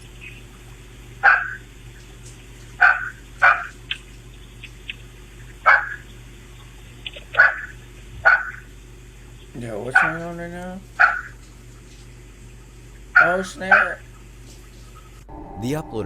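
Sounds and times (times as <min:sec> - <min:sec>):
steady low hum: 0:00.0 - 0:16.0
dog barking: 0:01.2 - 0:01.6, 0:02.8 - 0:03.7, 0:05.6 - 0:06.0, 0:07.4 - 0:08.6, 0:10.0 - 0:10.2, 0:11.0 - 0:11.4, 0:13.2 - 0:14.0.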